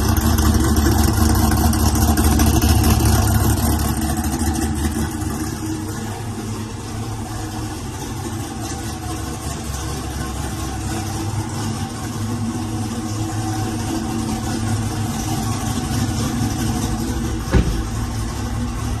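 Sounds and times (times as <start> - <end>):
car engine idling: 0.0 - 19.0
short sharp knock: 17.5 - 17.9.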